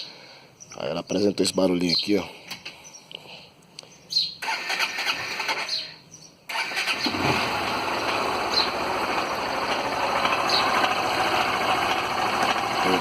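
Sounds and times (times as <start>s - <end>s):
motorcycle engine starting and running: 4.4s - 5.8s, 6.5s - 13.0s
engine cylinder head noise: 6.5s - 13.0s.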